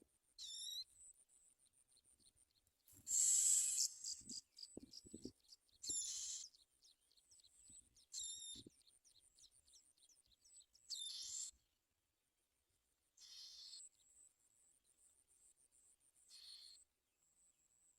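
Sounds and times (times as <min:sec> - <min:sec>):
quick thin chirps: 0:03.0 - 0:05.3
harsh buzzy bird calls: 0:03.0 - 0:06.6, 0:10.9 - 0:11.5, 0:13.2 - 0:13.8.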